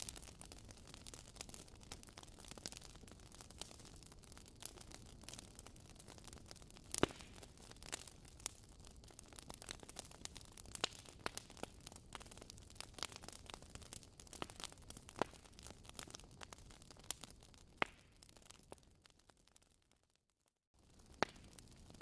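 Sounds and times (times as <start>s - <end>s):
wood fire crackling: 0.0s - 20.2s, 20.8s - 22.0s.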